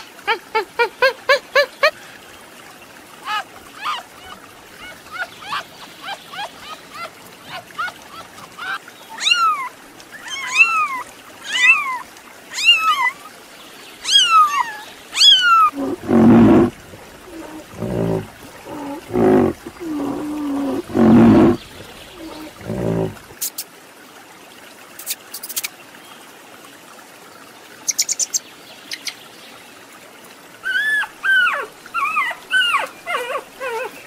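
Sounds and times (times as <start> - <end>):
lower drawn-out animal calls: 14.0 - 23.3.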